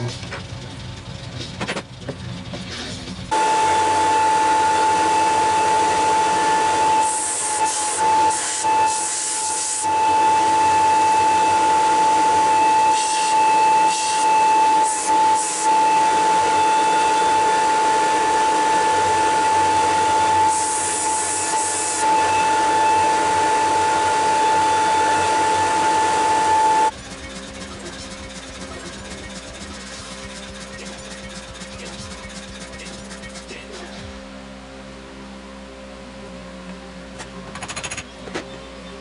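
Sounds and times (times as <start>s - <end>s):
power grinder motor whine: 3.3s - 27.0s.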